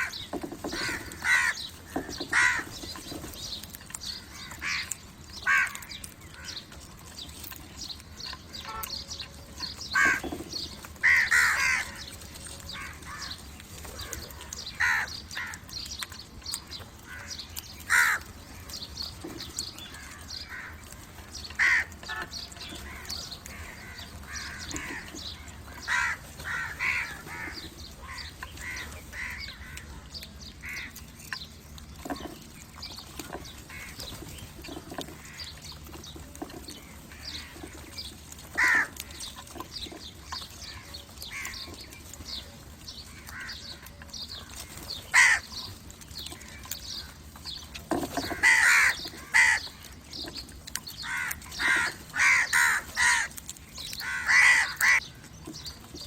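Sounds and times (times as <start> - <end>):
crows cawing: 0.0 - 2.8, 4.0 - 6.6, 9.9 - 10.3, 11.0 - 12.0, 12.7 - 13.4, 14.0 - 15.6, 17.0 - 18.3, 21.6 - 29.9, 38.5 - 39.3, 43.2 - 43.9, 45.1 - 45.7, 48.3 - 49.9, 51.0 - 53.4, 54.0 - 55.1.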